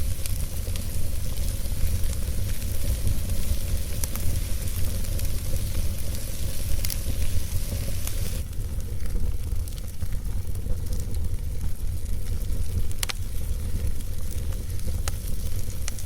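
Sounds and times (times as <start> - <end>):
low rumble: 0.0 - 8.5
campfire hissing: 0.0 - 16.0
fire crackles and pops: 0.0 - 16.0.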